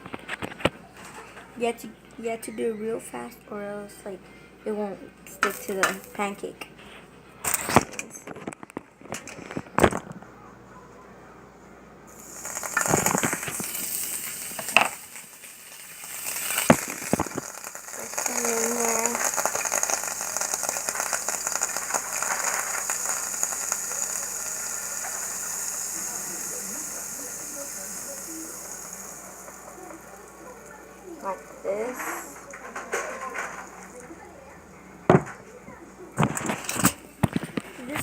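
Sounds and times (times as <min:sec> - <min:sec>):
frying pan sizzling: 0:05.4 - 0:06.4, 0:12.1 - 0:35.5.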